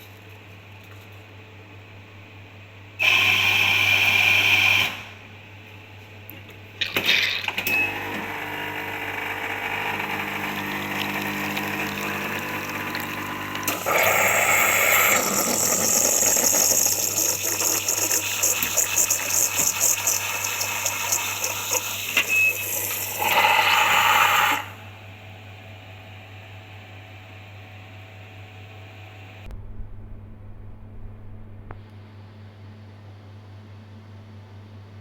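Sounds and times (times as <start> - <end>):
coffee machine hissing: 3.0 - 5.2, 7.1 - 25.2
coffee machine running: 3.0 - 5.3, 6.8 - 29.2.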